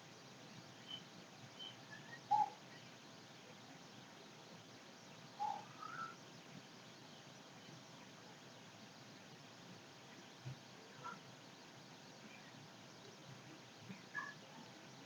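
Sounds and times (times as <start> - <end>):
faint bird chirps: 0.8 - 3.1, 5.4 - 6.2, 11.0 - 11.2, 13.9 - 15.0.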